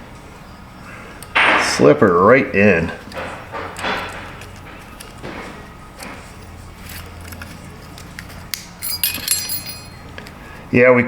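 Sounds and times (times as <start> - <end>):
light clicks and scrapes: 3.0 - 10.4.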